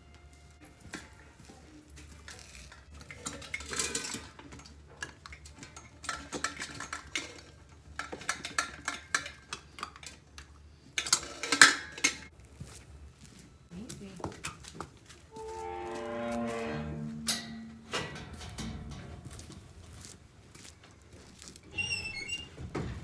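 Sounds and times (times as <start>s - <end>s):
metal clinking and clattering: 2.3s - 10.2s, 11.0s - 12.3s, 15.4s - 20.1s
loud scraping rush: 15.4s - 18.4s.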